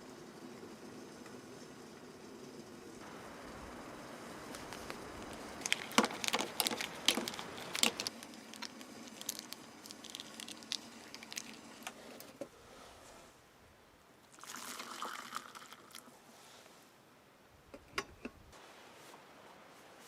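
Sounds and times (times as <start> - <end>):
dry wood crackling and snapping: 4.4 - 12.3.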